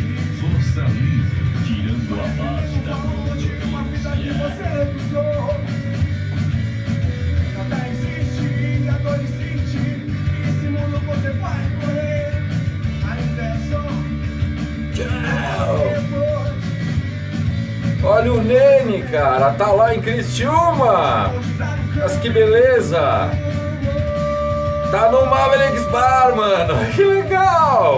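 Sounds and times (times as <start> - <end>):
rock music with shouted vocal: 0.0 - 27.9.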